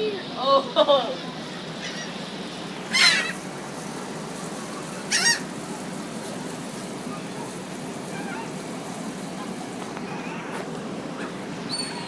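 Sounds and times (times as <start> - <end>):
steady background hiss: 0.0 - 12.0
bird squawk: 1.8 - 2.2, 2.9 - 3.4, 5.1 - 5.5, 8.1 - 8.6, 11.2 - 12.0
faint bird chirps: 11.7 - 12.0.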